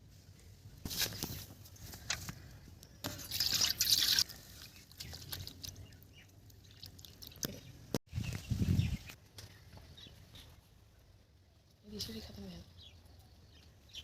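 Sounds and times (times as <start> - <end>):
water dripping and splashing: 3.2 - 8.0.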